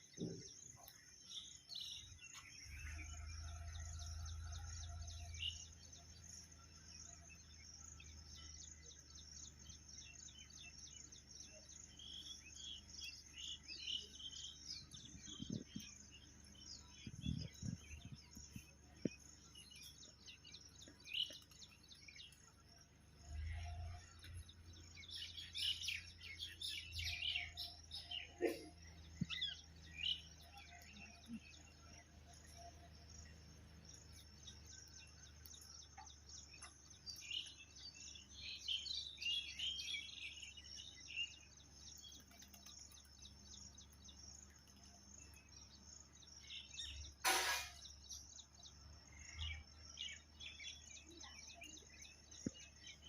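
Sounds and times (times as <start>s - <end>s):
small birds chirping: 0.0s - 53.0s
sharp knock: 47.2s - 47.8s.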